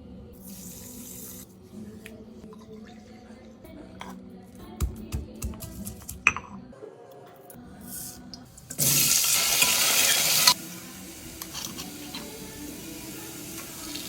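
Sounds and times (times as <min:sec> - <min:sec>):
food sizzling in a pan: 0:08.8 - 0:14.0.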